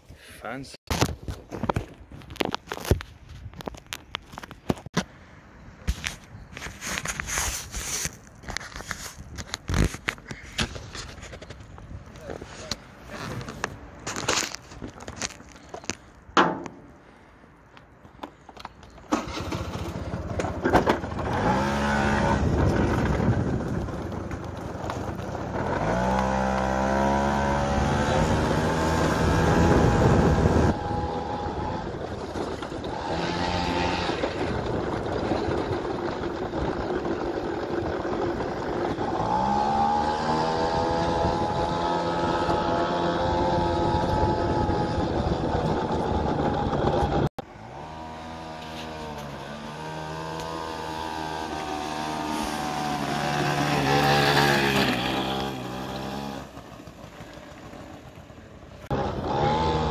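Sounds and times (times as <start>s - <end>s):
moped engine revving: 19.1s - 23.4s, 25.4s - 59.9s.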